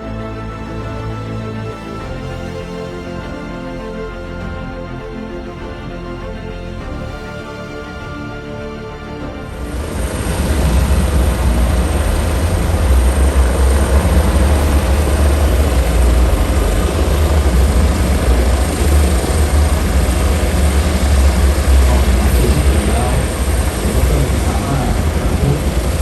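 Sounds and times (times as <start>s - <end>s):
helicopter rotor rumble: 9.5s - 26.0s
high turbine whine: 9.8s - 26.0s.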